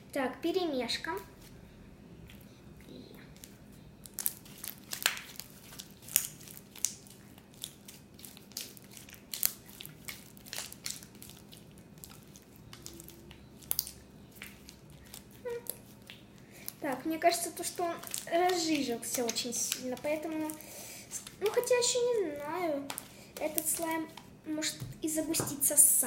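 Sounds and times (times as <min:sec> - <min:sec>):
slime kneaded by hand: 0:03.3 - 0:25.8.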